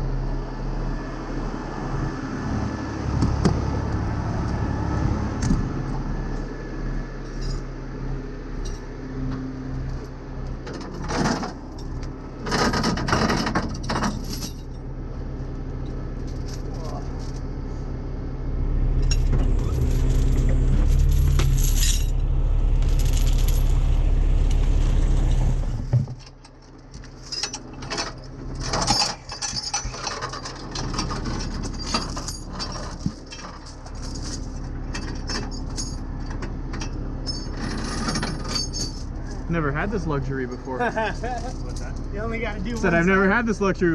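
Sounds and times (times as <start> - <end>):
truck engine running: 0.0 - 43.9
metal chains clinking: 7.3 - 7.7, 10.8 - 14.8, 16.2 - 17.5, 19.0 - 22.2, 22.8 - 23.8, 27.2 - 39.5, 40.5 - 43.1.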